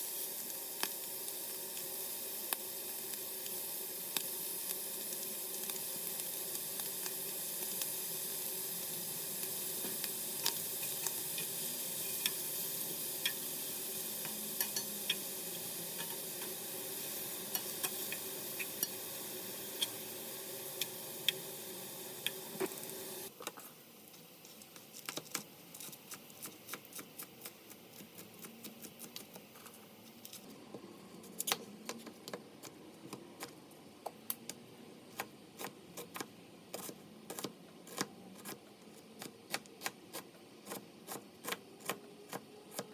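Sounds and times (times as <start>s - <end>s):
food sizzling in a frying pan: 0.0s - 25.1s.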